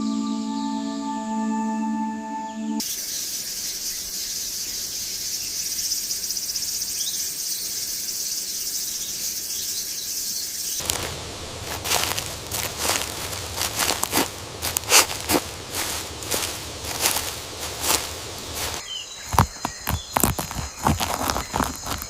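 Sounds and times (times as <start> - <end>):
high-pitched insect chorus: 2.8 - 22.0
crackling and rustling: 10.8 - 22.0.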